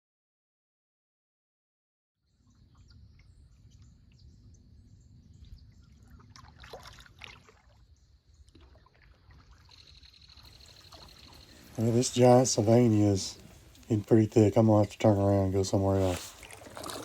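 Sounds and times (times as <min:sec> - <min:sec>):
kayak paddle pulling through water: 0:06.0 - 0:07.8, 0:08.4 - 0:17.0
water dripping off paddle: 0:16.0 - 0:17.0.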